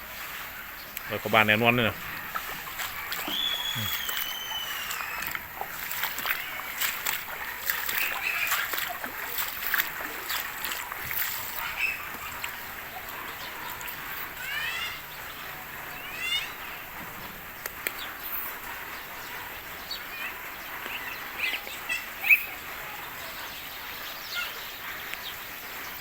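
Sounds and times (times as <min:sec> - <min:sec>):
floodwater splashing: 0:00.0 - 0:26.0
heavy rain: 0:00.0 - 0:26.0
rising chirps: 0:03.2 - 0:05.6.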